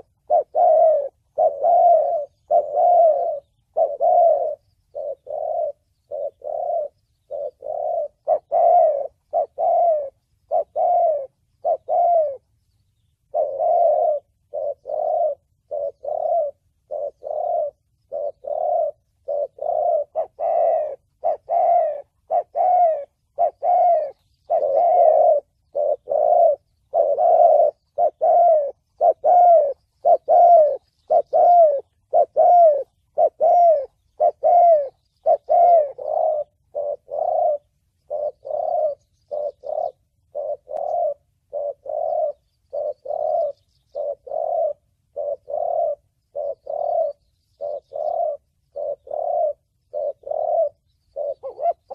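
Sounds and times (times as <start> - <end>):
dove cooing: 0.0 - 51.9.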